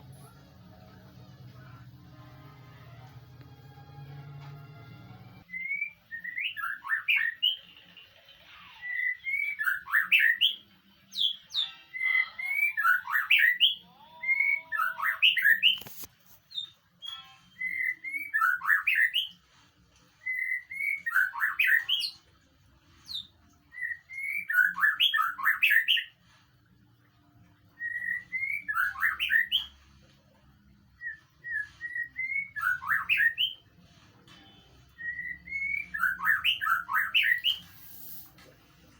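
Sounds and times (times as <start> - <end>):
bird whistling song: 5.4 - 7.7, 8.7 - 19.4, 20.2 - 22.2, 23.0 - 26.2, 27.7 - 29.8, 30.9 - 33.7, 34.3 - 38.4.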